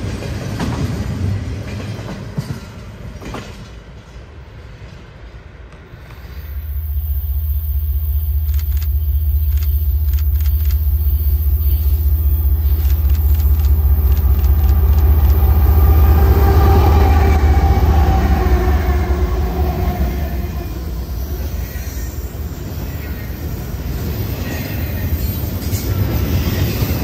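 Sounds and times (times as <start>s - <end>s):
train rumbling past: 0.0s - 27.0s
sharp clicks: 8.3s - 16.1s.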